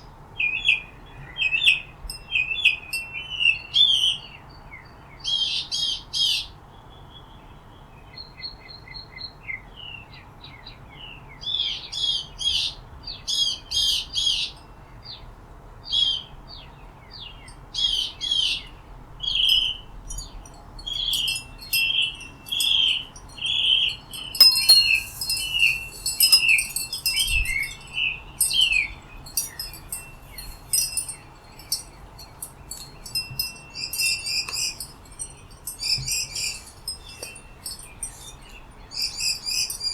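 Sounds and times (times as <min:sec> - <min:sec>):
songbirds chirping: 0:16.5 - 0:39.9.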